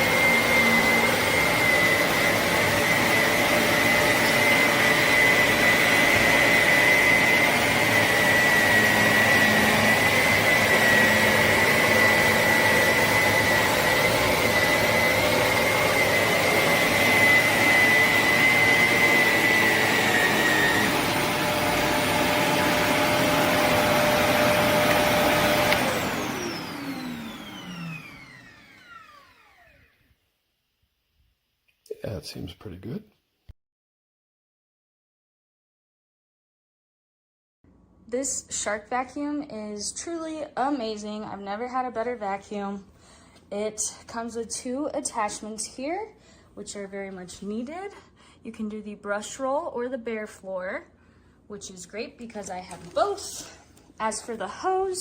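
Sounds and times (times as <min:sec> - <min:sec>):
vacuum motor winding down: 0:00.0 - 0:30.1
vacuum cleaner whining: 0:00.0 - 0:30.2, 0:51.6 - 0:55.0.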